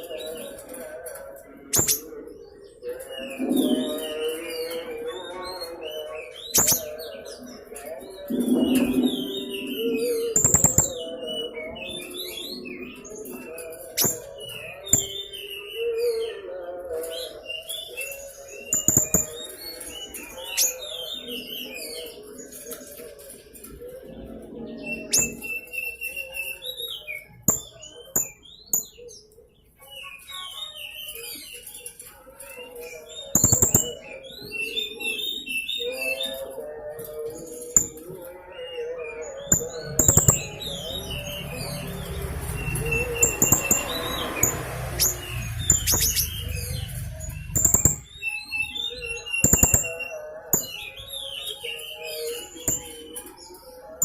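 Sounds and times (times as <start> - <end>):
parrot chirping: 9.8 - 11.0, 39.2 - 50.0.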